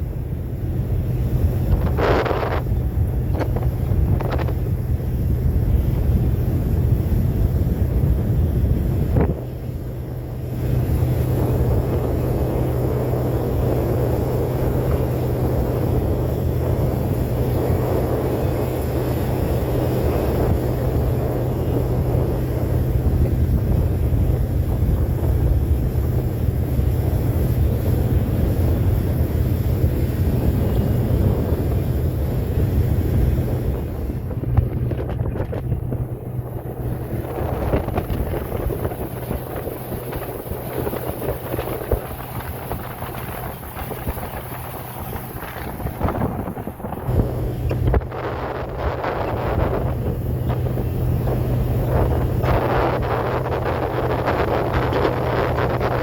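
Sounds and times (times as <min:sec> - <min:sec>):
steady low hum: 0:00.0 - 0:56.0
wind rumbling on microphone: 0:00.0 - 0:56.0.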